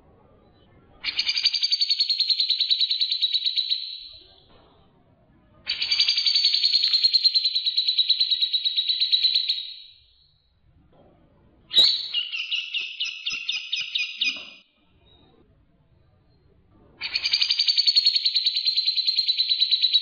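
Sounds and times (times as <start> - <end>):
songbird trills: 5.7 - 10.3, 11.7 - 15.2.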